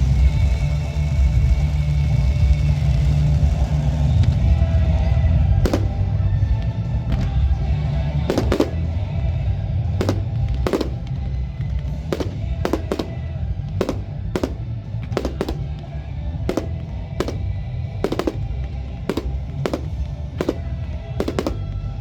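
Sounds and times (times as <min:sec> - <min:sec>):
background music: 0:00.0 - 0:22.0
fireworks bangs: 0:05.7 - 0:06.4, 0:08.3 - 0:09.1, 0:10.0 - 0:22.0.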